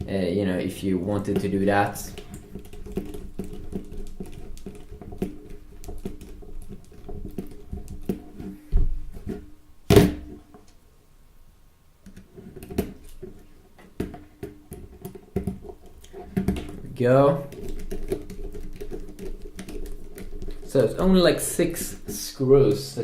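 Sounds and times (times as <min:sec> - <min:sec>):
plastic parts clicking and tapping: 0:01.2 - 0:08.5, 0:12.0 - 0:21.0.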